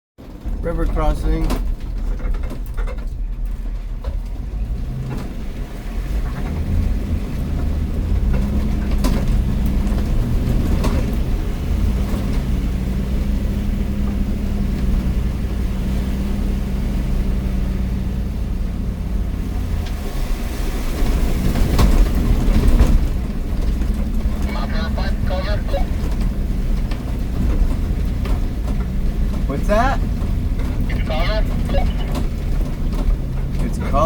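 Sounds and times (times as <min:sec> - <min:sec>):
van engine running: 0:00.2 - 0:34.0
water washing: 0:19.2 - 0:34.0.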